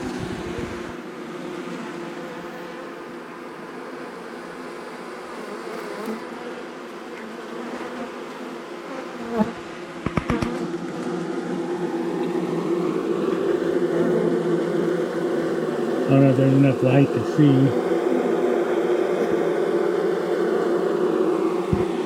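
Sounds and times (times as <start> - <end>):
honeybees buzzing: 0.0 - 22.0
sharp knocks: 10.0 - 10.6.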